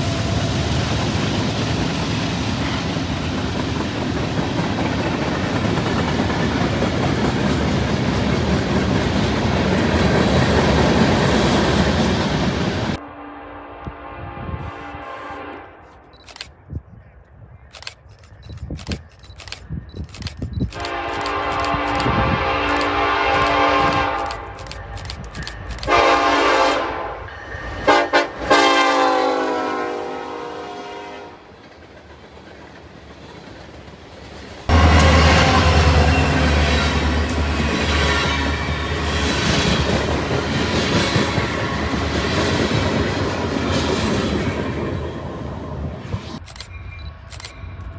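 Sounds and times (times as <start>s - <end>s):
train wheels clattering over rails: 0.0s - 13.0s, 31.7s - 45.2s
locomotive air horn blasts: 13.0s - 16.0s, 20.8s - 24.2s, 25.9s - 27.3s, 27.9s - 31.4s, 34.7s - 36.7s.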